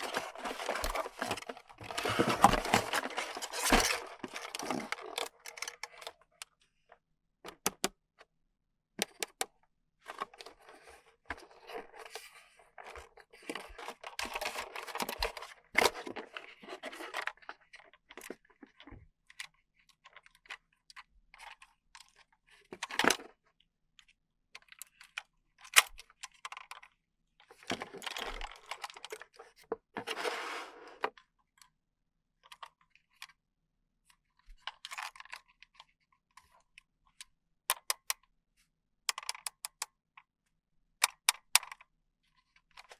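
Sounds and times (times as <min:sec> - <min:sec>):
plastic and cardboard crinkling: 0:00.0 - 0:06.1
plastic parts clicking: 0:07.5 - 0:07.9, 0:09.0 - 0:09.5, 0:37.7 - 0:38.2, 0:39.1 - 0:39.9, 0:41.0 - 0:41.8.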